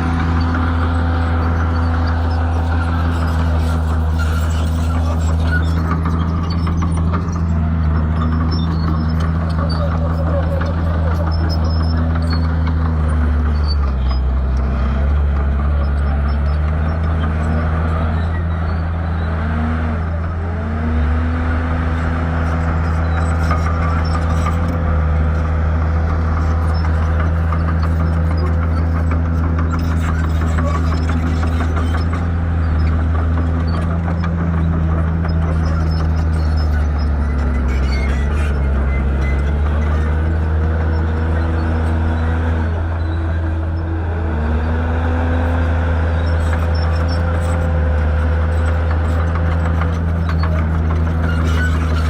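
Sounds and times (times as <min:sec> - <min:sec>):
bulldozer diesel engine running: 0:00.0 - 0:52.0.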